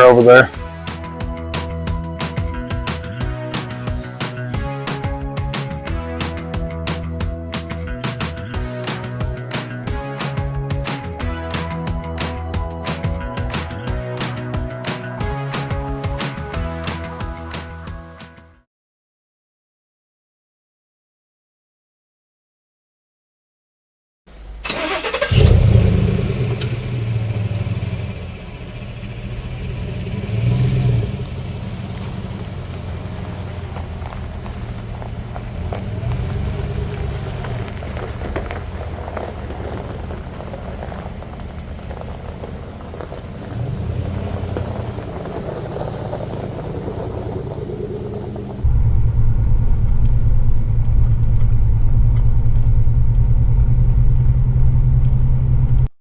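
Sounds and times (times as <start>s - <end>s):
car engine starting: 0.0s - 18.2s, 24.3s - 55.9s
car engine and road rumble: 0.0s - 18.3s, 24.3s - 55.9s.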